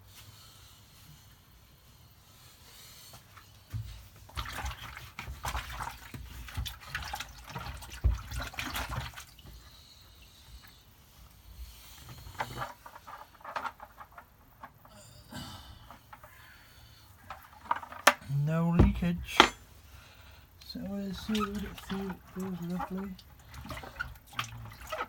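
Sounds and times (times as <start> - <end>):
water pouring and splashing: 3.7 - 10.8, 20.6 - 25.0.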